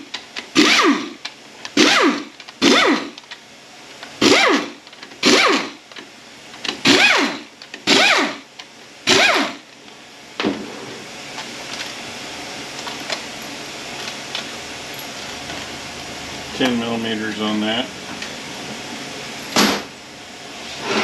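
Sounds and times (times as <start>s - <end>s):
power tool spinning up: 0.5s - 1.2s, 1.8s - 3.2s, 4.2s - 5.8s, 6.8s - 8.4s, 9.1s - 9.6s.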